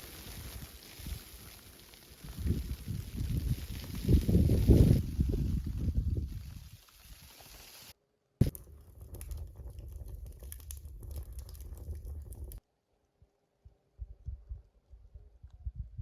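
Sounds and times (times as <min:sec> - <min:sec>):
dense crackling and clicking: 0:00.0 - 0:12.6.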